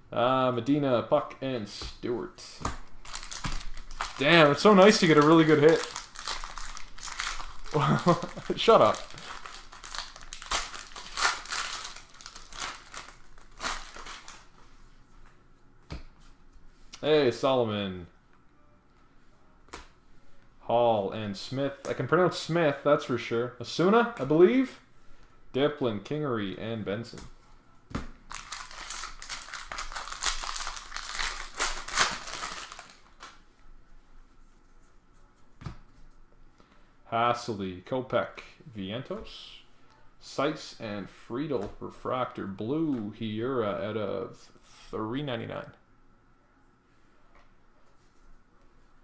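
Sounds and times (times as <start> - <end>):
cards rustling: 2.5 - 14.7, 28.3 - 33.4
wrappers crinkling: 2.8 - 14.6, 28.3 - 33.4.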